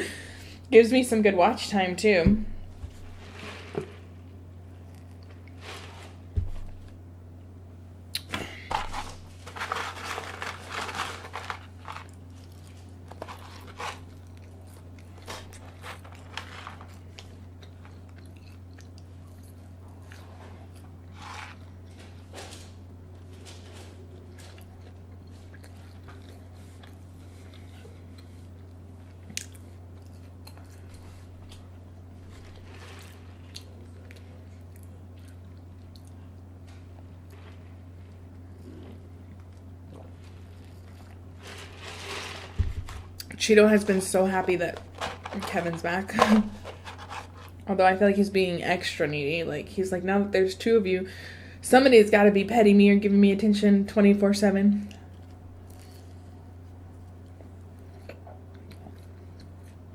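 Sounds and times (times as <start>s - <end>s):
steady low hum: 0.0s - 59.9s
chewing crunchy food: 4.6s - 5.6s, 8.9s - 42.0s, 54.9s - 59.9s.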